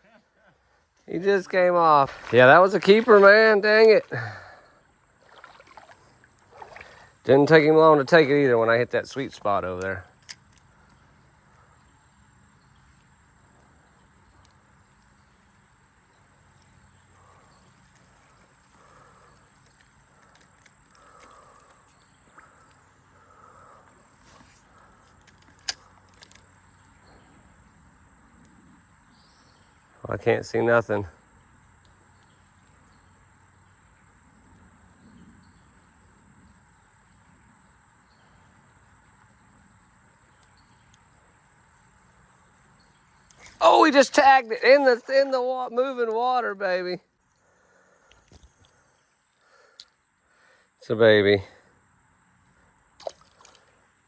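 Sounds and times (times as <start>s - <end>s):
creek water hissing: 1.1s - 9.7s, 43.2s - 46.9s.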